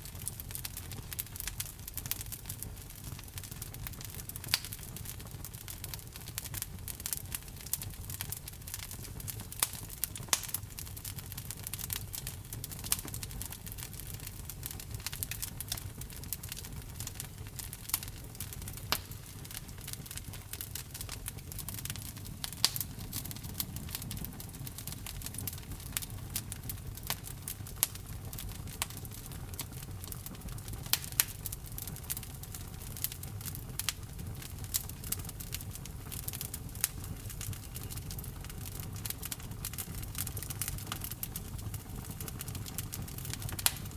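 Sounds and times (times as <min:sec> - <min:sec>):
fire crackling and popping: 0:00.0 - 0:43.9
low rumble of flames: 0:00.0 - 0:43.9.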